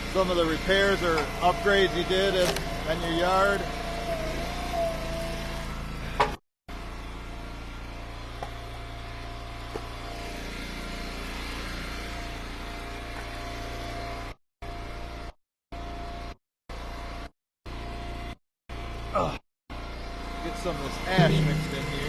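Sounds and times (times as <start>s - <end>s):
small gas engine running: 0.0s - 22.0s
sharp knock: 21.2s - 22.0s.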